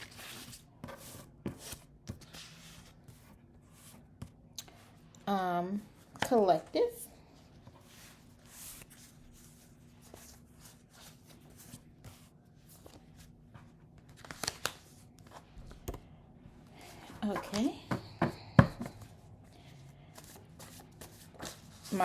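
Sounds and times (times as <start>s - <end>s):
cards shuffling by hand: 8.0s - 16.0s.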